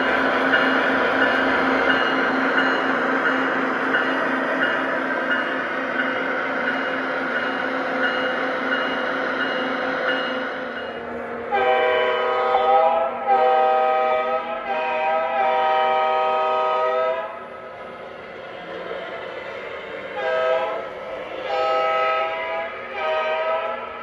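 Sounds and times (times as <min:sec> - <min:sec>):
locomotive horn blasts: 0:11.5 - 0:17.3, 0:20.2 - 0:20.8, 0:21.5 - 0:23.9.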